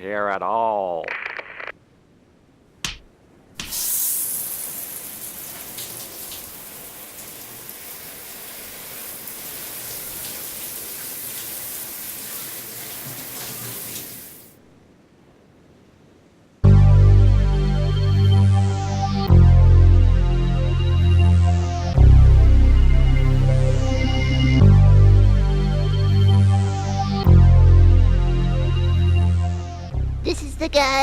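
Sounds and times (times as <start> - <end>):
loud music: 16.7 - 30.5.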